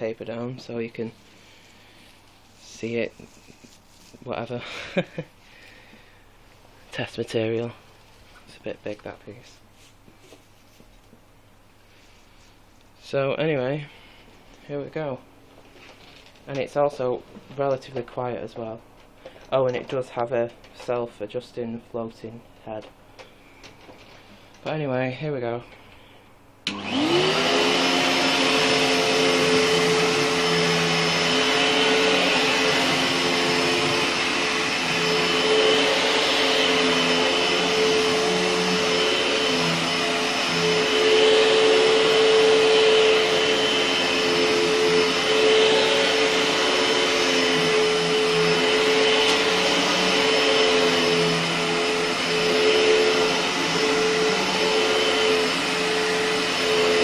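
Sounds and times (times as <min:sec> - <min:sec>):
vacuum cleaner running: 0:26.6 - 0:57.0.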